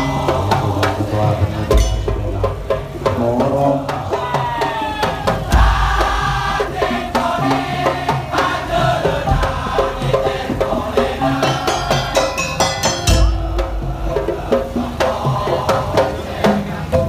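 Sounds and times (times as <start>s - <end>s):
deep bass drum hits: 0.0s - 3.2s, 5.4s - 7.0s, 9.2s - 11.2s, 13.1s - 15.5s
drums and wooden percussion: 0.0s - 17.0s
percussion ensemble melody: 0.0s - 17.0s.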